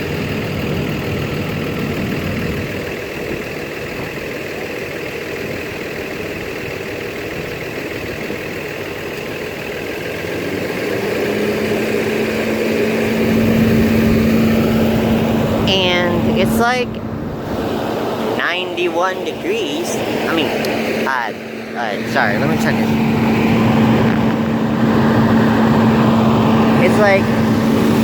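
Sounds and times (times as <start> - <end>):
bus engines idling: 0.0 - 28.0
broad rushing noise: 10.4 - 28.0
steady hum: 11.5 - 28.0.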